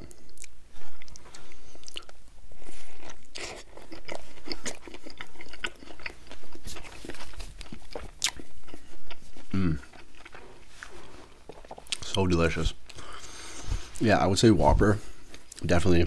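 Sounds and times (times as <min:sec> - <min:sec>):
close chewing with wet mouth sounds: 0:00.0 - 0:12.2.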